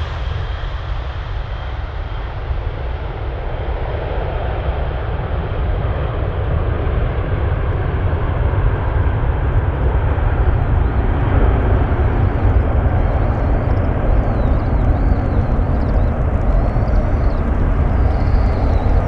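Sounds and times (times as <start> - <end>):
jet engines rumbling: 8.7 - 19.0.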